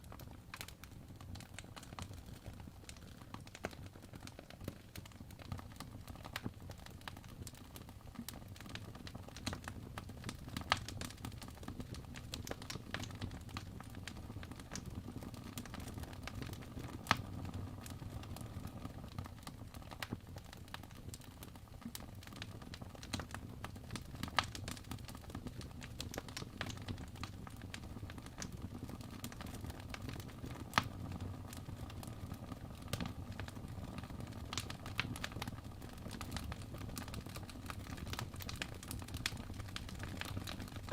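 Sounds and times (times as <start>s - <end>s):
logs crackling and popping: 0.0s - 40.9s
fire rumbling: 23.2s - 40.9s.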